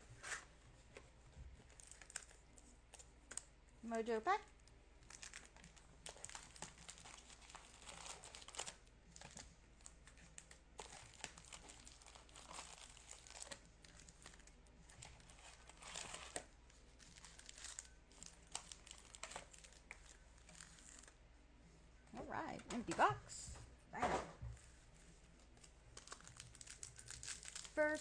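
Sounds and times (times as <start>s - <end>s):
card packs crinkling: 1.6s - 3.5s, 4.7s - 21.2s, 25.4s - 28.0s.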